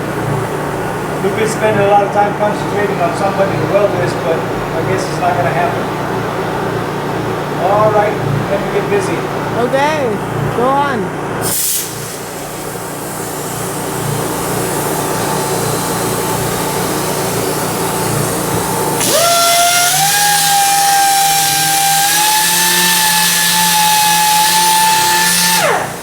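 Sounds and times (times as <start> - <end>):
power sander: 12.7 - 26.0.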